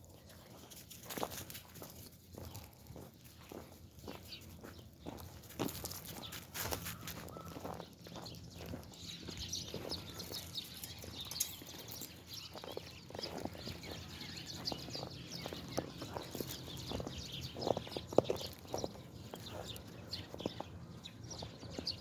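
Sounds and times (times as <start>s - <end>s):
footsteps crunching in snow: 0.6s - 10.1s.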